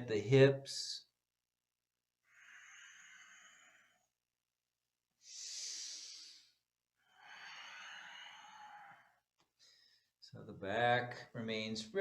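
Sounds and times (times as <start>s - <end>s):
person breathing deeply: 2.2s - 4.2s, 5.2s - 10.2s.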